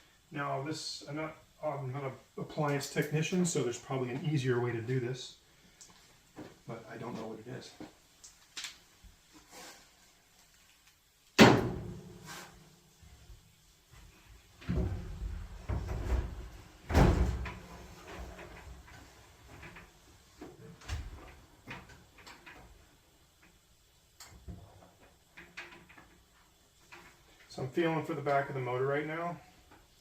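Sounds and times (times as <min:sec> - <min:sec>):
dryer drum knocks and clunks: 0:11.4 - 0:12.3, 0:14.6 - 0:18.4.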